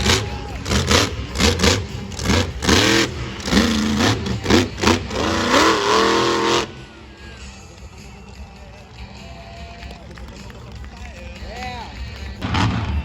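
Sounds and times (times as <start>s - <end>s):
truck engine revving: 0.0s - 8.4s, 12.2s - 13.0s.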